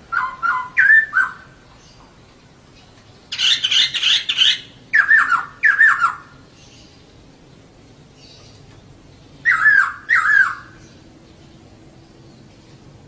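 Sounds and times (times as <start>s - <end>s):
bird calling: 0.0s - 7.2s, 8.2s - 11.4s
harsh bird chattering: 3.3s - 6.3s, 9.4s - 10.8s.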